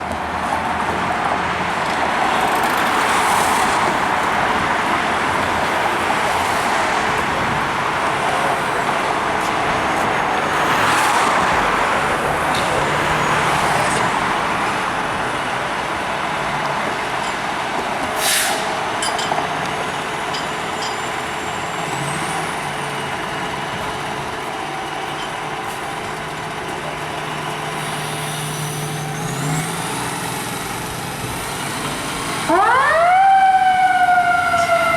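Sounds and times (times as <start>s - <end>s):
heavy trucks and street traffic: 0.0s - 34.9s
air-brake hiss: 18.2s - 18.8s, 27.7s - 29.4s.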